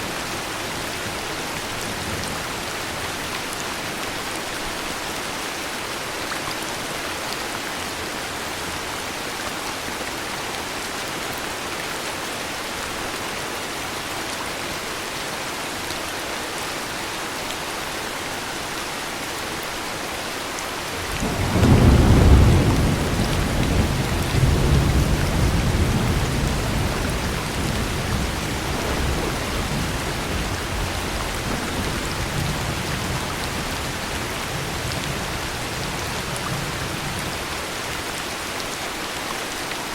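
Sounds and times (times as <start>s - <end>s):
heavy rain: 0.0s - 39.9s
thunder rumbling: 21.0s - 37.3s.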